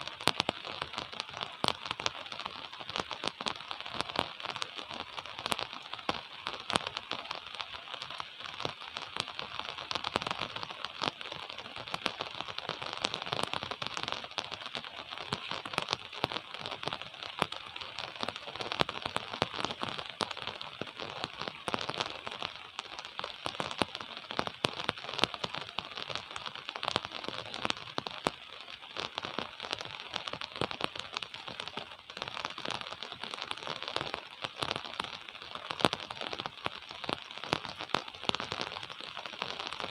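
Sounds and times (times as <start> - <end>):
gentle rain patter: 0.0 - 39.9.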